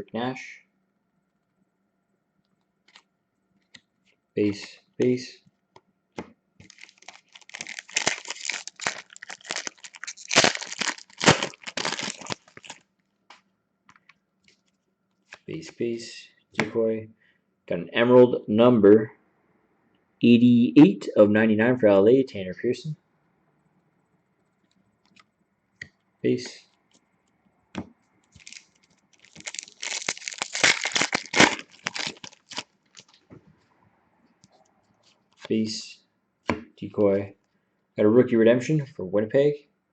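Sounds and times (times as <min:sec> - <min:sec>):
foil wrapper crinkling and tearing: 0:06.6 - 0:12.8, 0:28.3 - 0:33.2.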